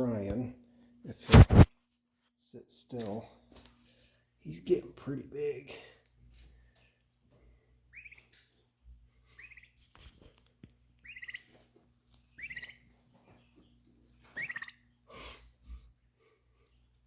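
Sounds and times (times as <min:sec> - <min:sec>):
bird chirping calls: 0:07.9 - 0:08.4, 0:09.2 - 0:10.1, 0:10.9 - 0:11.6, 0:12.2 - 0:15.0.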